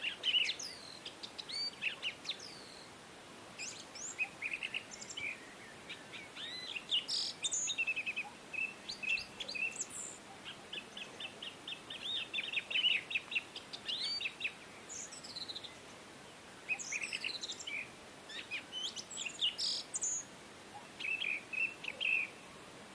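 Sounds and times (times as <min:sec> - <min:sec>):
faint steady hiss: 0:00.0 - 0:22.9
birds chirping and calling: 0:03.6 - 0:15.8, 0:16.6 - 0:22.4.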